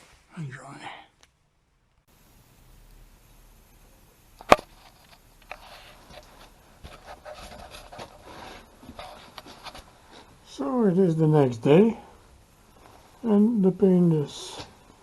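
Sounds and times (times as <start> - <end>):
rubbing and scraping handling noises: 4.5 - 10.4.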